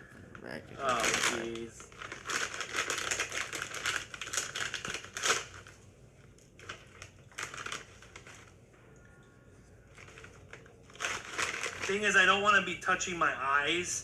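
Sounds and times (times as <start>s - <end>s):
chip bag crinkling: 0.8s - 8.6s, 9.9s - 12.6s.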